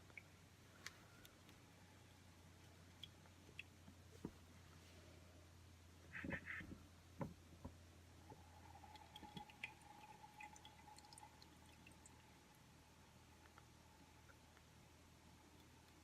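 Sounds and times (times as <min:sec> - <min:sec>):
thin steady tone: 0:08.1 - 0:16.0
coffee dripping into cup: 0:08.2 - 0:12.6.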